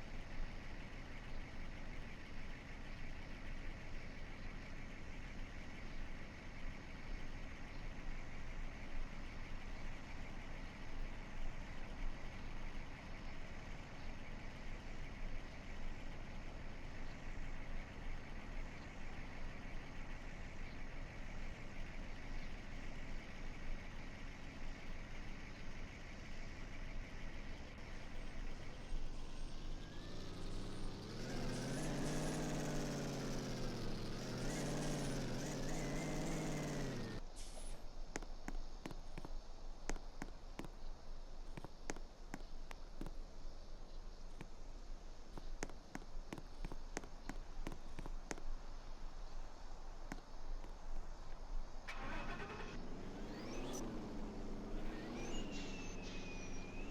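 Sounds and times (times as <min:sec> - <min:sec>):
vehicle background noise: 0:00.0 - 0:56.9
truck engine revving: 0:27.8 - 0:37.2, 0:51.9 - 0:56.9.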